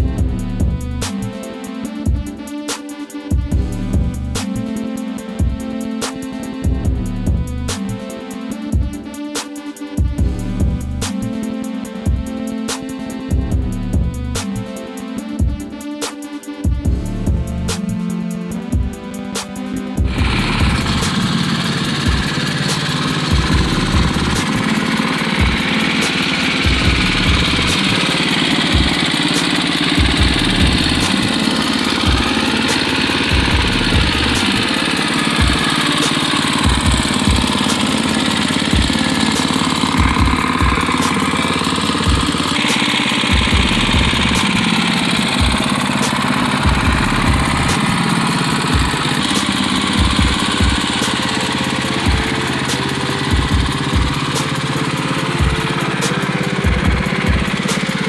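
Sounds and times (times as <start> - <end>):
dull low thumps: 0.0 - 1.3, 3.4 - 4.6, 6.7 - 8.0, 10.0 - 11.3, 13.3 - 14.6, 16.7 - 18.0, 20.0 - 22.4, 23.3 - 25.8, 26.6 - 28.1, 30.0 - 34.7, 43.3 - 44.8, 45.4 - 51.0
go-kart engine running: 16.9 - 58.0.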